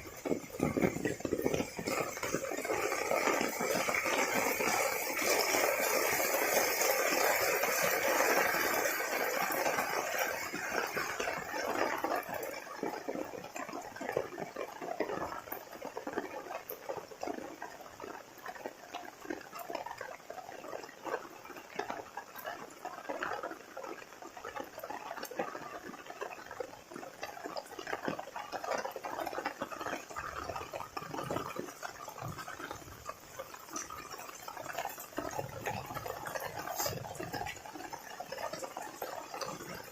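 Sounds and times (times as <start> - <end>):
heavy rain falling: 0.0 - 14.6, 27.2 - 39.9.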